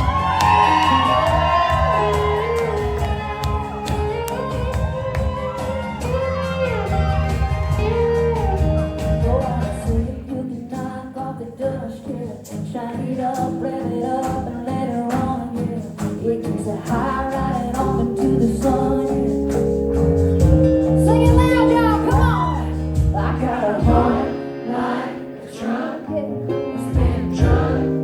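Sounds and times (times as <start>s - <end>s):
live country band playing: 0.0s - 28.0s
woman singing lead: 9.0s - 19.8s, 20.9s - 28.0s.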